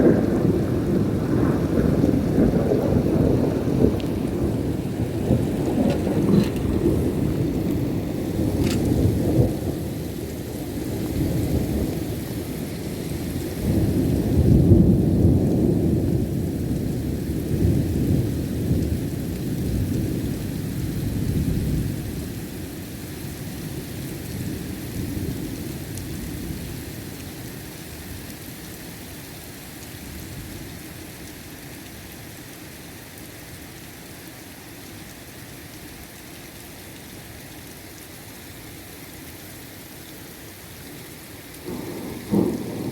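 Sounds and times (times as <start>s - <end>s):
thunder crack and rumble: 0.0s - 12.1s, 13.3s - 21.9s, 41.6s - 42.9s
heavy rain: 0.0s - 42.9s.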